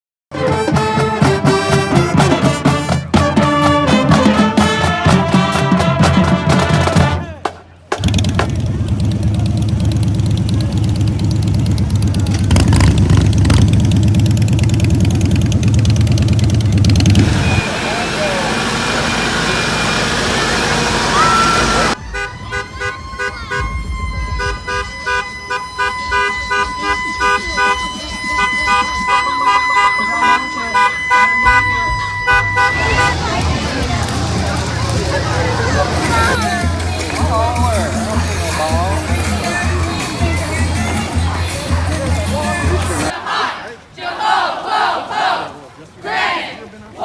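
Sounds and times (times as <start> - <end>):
brass band music: 0.3 - 8.8, 16.4 - 45.4
street vehicles: 0.3 - 47.0
steady drum beat: 0.4 - 18.7, 26.3 - 43.2
pulsing electronic siren: 15.8 - 33.9
short horn toot: 21.1 - 33.5.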